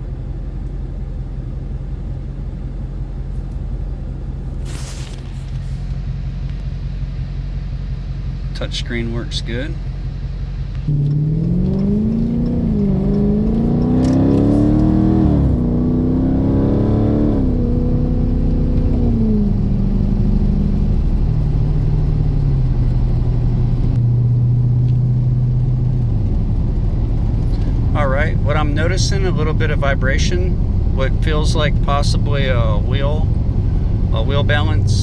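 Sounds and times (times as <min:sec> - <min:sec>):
car engine accelerating through gears: 0:09.3 - 0:35.0.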